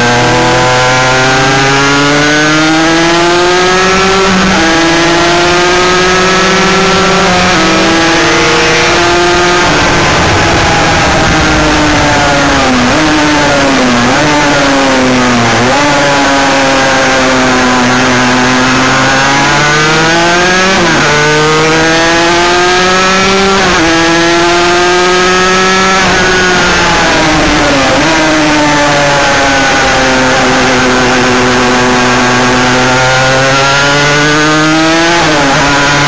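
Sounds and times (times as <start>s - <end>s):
motorcycle engine revving: 0.0s - 36.0s
wind rush: 7.6s - 16.0s.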